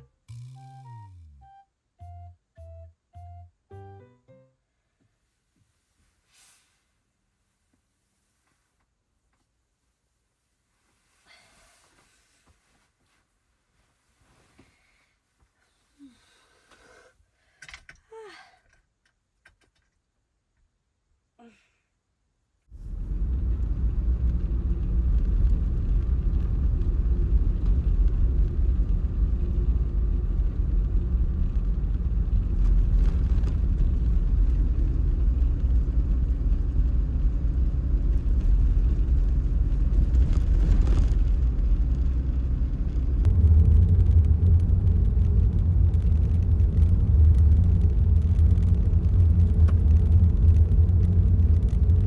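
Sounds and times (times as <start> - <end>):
car road and engine rumble: 22.7 - 52.0.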